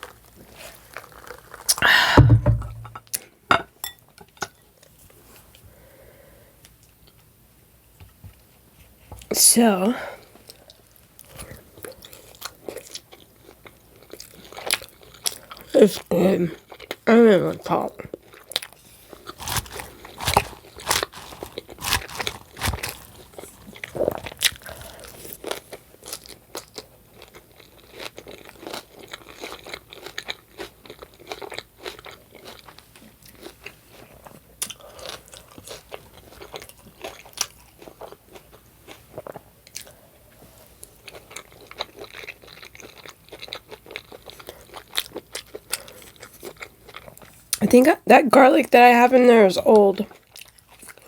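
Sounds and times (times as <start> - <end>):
chewing and biting food: 0.0 - 1.9, 10.3 - 15.7, 18.0 - 47.6, 50.0 - 51.0.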